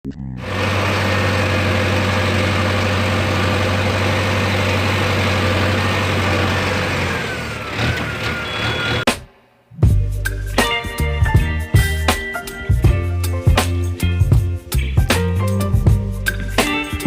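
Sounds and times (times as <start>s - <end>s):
tractor engine idling: 0.4s - 9.1s.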